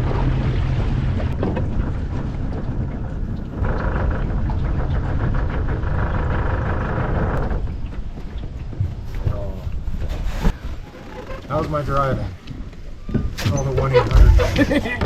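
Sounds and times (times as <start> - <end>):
wind on microphone: 0.0 - 11.3
outboard motor running: 0.0 - 12.8
water noise: 0.0 - 15.0.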